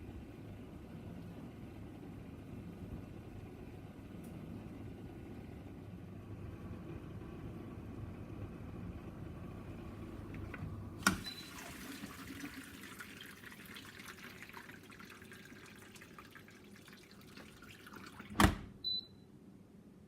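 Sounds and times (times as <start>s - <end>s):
dishwasher hum: 6.4s - 19.1s
water trickling and dripping: 12.5s - 18.4s.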